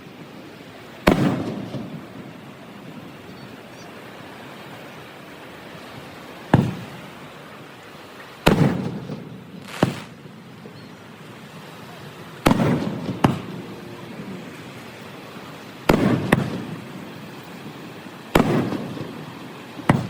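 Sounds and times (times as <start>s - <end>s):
fireworks bangs: 1.0s - 2.5s, 6.5s - 7.0s, 8.4s - 10.4s, 12.4s - 14.4s, 15.8s - 20.0s.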